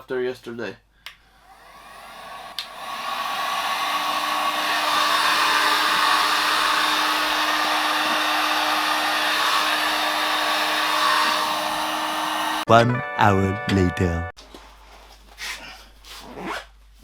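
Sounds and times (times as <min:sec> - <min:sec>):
hair dryer blowing: 0:01.4 - 0:12.7
hair dryer switch click: 0:02.3 - 0:03.4.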